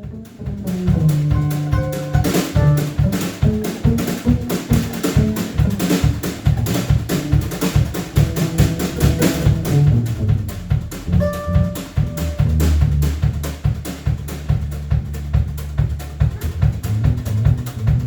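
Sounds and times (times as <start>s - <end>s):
live band playing: 0.0s - 13.4s
bass line: 0.0s - 18.0s
driving drum beat: 0.0s - 18.0s.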